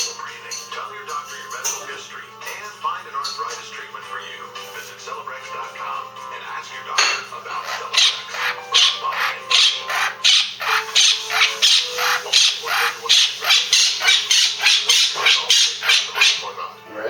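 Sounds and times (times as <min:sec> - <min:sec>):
parrot squawking: 0:07.5 - 0:16.6.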